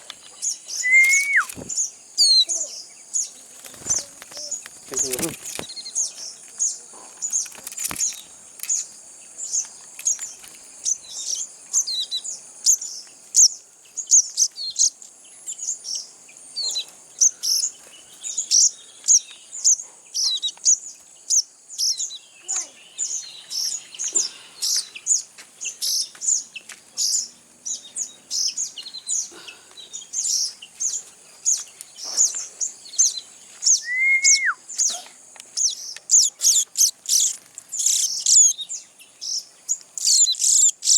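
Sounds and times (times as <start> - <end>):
young birds chirping: 0.0 - 40.9
high-pitched insect trill: 0.4 - 14.1
low whistle: 0.8 - 1.6, 33.8 - 34.6.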